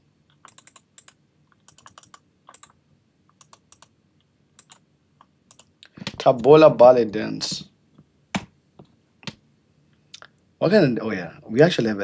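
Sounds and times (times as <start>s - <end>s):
keyboard typing: 0.3s - 3.9s, 4.6s - 4.8s, 5.5s - 6.3s.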